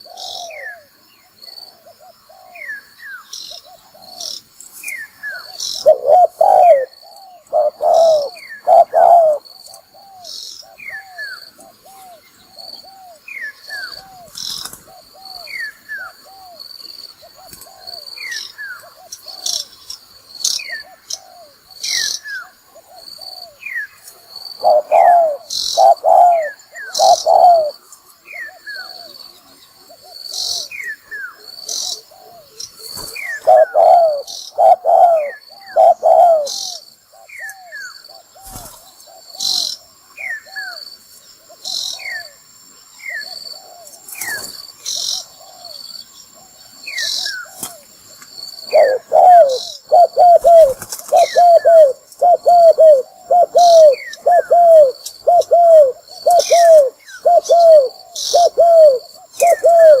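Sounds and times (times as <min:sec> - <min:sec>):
dove cooing: 0:00.0 - 0:00.9, 0:01.7 - 0:02.8, 0:05.3 - 0:16.6, 0:24.5 - 0:40.8, 0:45.2 - 0:47.9, 0:48.6 - 1:00.0.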